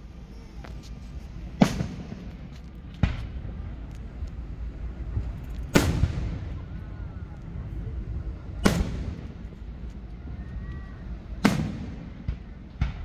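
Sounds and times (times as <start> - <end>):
steady low rumble: 0.0 - 13.0
firework shells booming: 1.5 - 4.2, 5.1 - 6.7, 8.6 - 9.6, 11.3 - 13.0.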